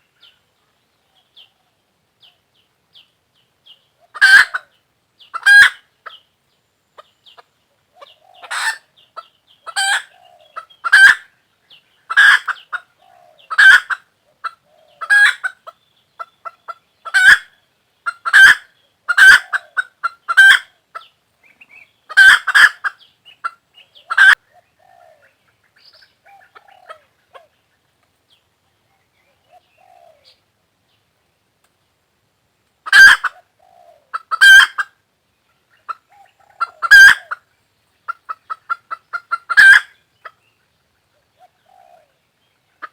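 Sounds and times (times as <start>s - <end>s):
hen clucking: 4.0s - 6.2s, 7.0s - 11.3s, 12.1s - 27.9s, 32.8s - 35.0s, 35.7s - 40.4s, 41.1s - 42.9s.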